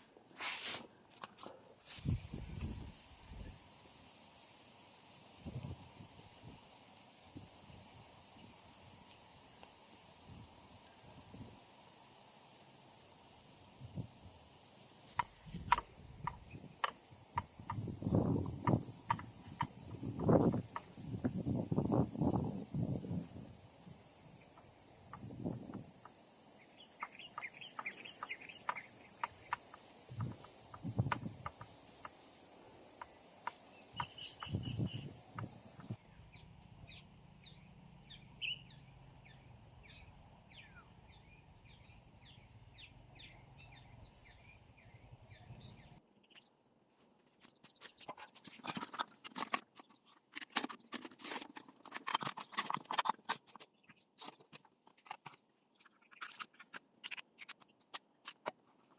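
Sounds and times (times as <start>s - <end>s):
high insect trill: 1.9s - 46.0s
clicking and rustling handling noises: 47.6s - 58.9s.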